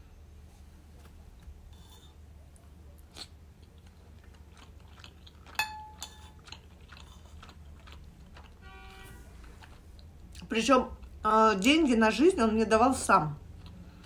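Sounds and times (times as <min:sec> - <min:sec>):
chewing wet mouth sounds: 0:02.6 - 0:11.2, 0:13.4 - 0:14.0
metal utensil clinking on plate: 0:05.6 - 0:06.3.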